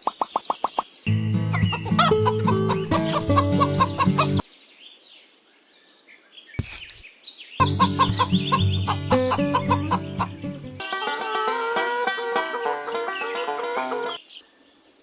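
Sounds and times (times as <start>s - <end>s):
background music: 1.1s - 4.4s, 7.6s - 14.2s
chicken clucking: 1.5s - 4.4s, 7.6s - 14.2s
faint bird calls: 1.6s - 5.0s, 5.7s - 10.4s.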